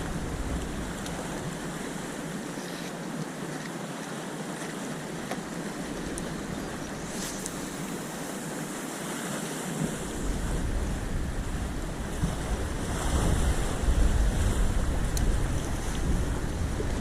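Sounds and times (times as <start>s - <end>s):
wind buffeting microphone: 0.0s - 2.6s, 5.4s - 9.0s, 9.7s - 17.0s
sea waves: 0.0s - 17.0s.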